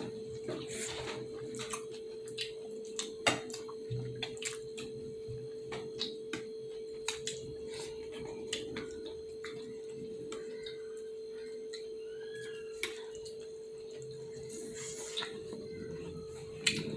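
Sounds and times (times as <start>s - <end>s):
faint hum: 0.0s - 16.9s.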